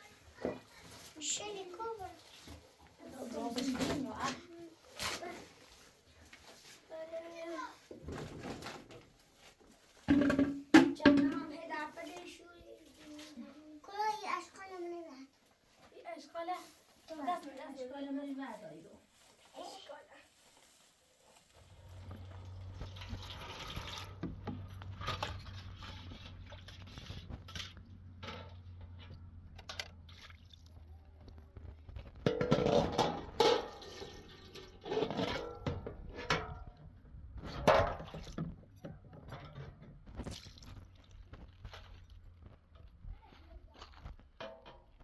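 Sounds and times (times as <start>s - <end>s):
scrapes and knocks: 0.1s - 13.4s, 21.4s - 30.0s, 31.4s - 45.0s
liquid handled in a container: 20.4s - 45.0s.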